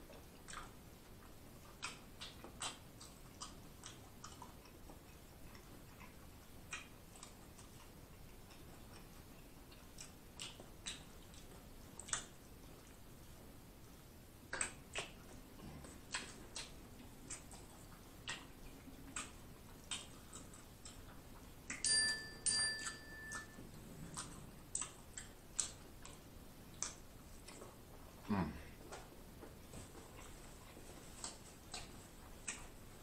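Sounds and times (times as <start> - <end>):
wet mouth clicks and lip smacks: 1.6 - 9.1, 9.7 - 13.0, 14.5 - 21.8, 24.1 - 27.7.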